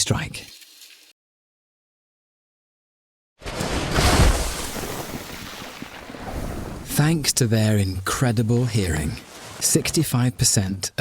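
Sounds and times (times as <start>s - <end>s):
owl crashing into snow: 3.4s - 6.6s.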